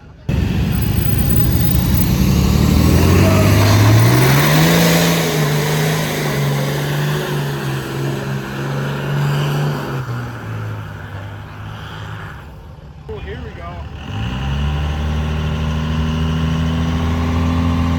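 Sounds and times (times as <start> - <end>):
loud rushing noise: 0.3 - 10.6
truck engine revving: 0.3 - 17.9.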